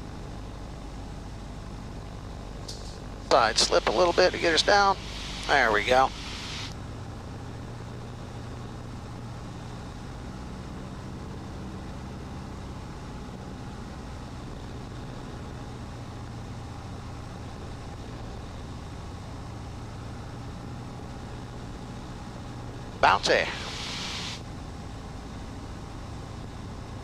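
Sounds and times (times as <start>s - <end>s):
airplane engine droning: 0.0s - 27.0s
airflow noise: 2.7s - 6.7s, 23.0s - 24.4s.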